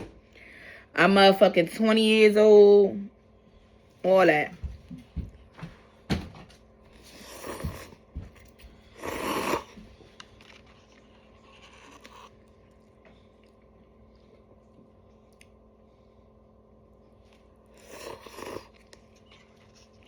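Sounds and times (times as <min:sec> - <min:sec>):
person chewing noodles: 0:06.9 - 0:16.3, 0:16.9 - 0:20.0.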